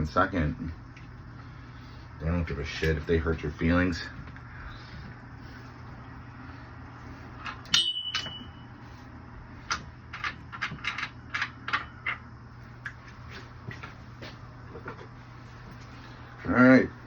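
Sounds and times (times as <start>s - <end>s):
steady low hum: 0.0s - 17.0s
metallic clang ringing: 7.6s - 8.7s.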